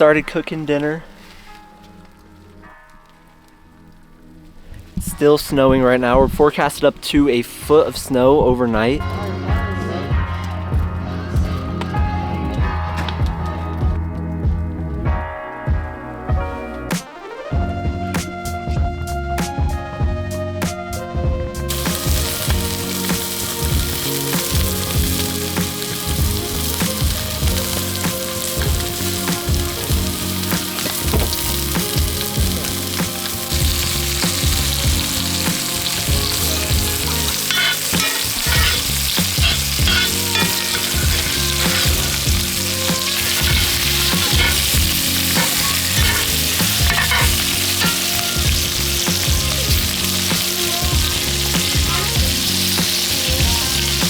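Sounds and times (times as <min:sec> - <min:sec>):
food sizzling in a pan: 0:21.7 - 0:54.0
stirring clicks and scrapes: 0:35.5 - 0:48.6.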